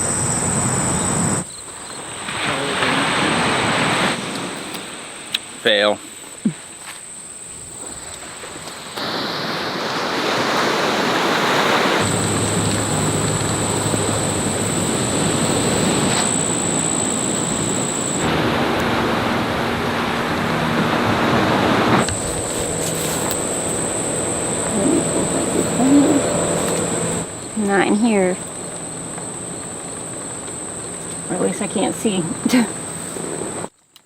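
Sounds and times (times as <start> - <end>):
high-pitched insect drone: 0.0 - 3.6, 11.5 - 33.7
rushing outdoor noise: 0.0 - 33.8.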